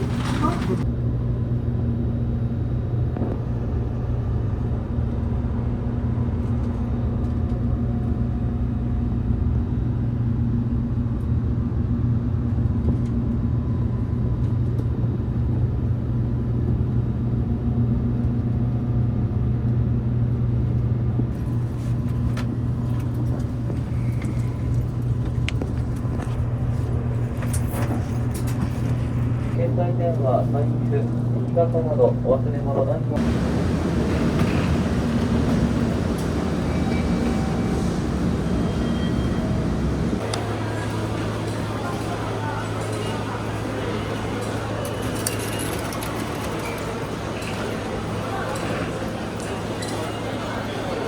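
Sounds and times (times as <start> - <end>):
rolling wheel noise: 0.0 - 0.9, 33.2 - 51.0
train cabin rumble and hum: 0.0 - 51.0.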